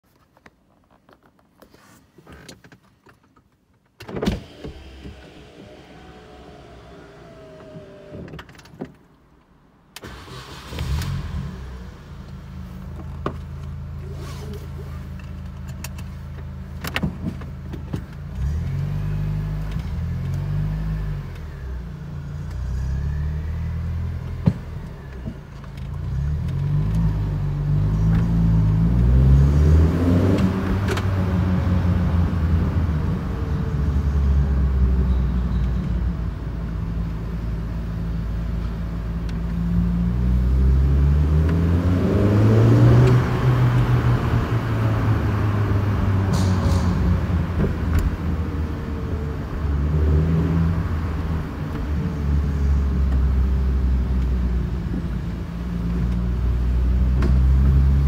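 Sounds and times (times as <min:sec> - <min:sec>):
car engine starting and revving: 0:04.1 - 0:08.8, 0:09.9 - 0:58.0
exhaust pops: 0:45.5 - 0:48.8.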